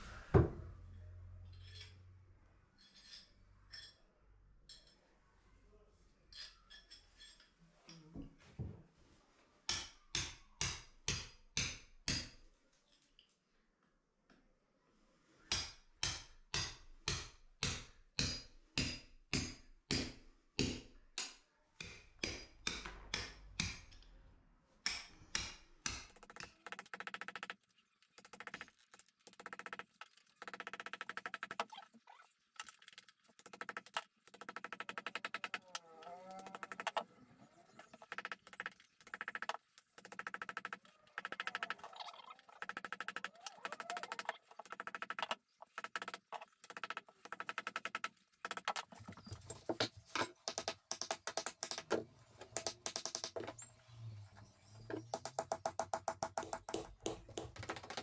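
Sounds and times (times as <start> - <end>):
hammer striking chisel: 15.5 - 24.0, 24.8 - 27.5, 49.8 - 53.5, 55.1 - 57.4.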